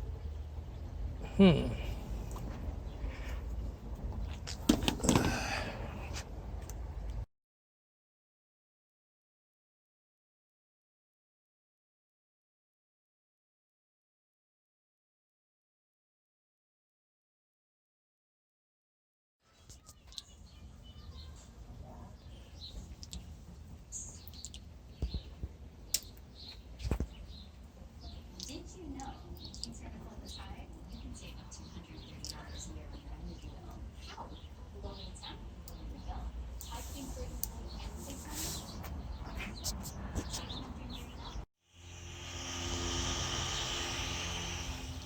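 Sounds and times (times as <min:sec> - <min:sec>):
small birds chirping: 0:19.4 - 0:41.5
low rumble: 0:41.8 - 0:45.0
mechanical hum with hiss: 0:41.8 - 0:45.0.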